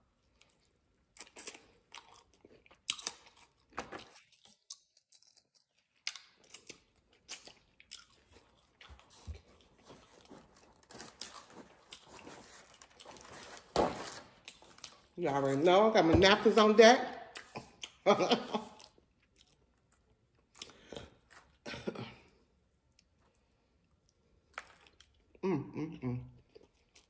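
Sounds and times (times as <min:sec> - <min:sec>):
chewing chicken wings crunching: 0:00.2 - 0:13.3, 0:14.4 - 0:15.2, 0:18.6 - 0:21.6.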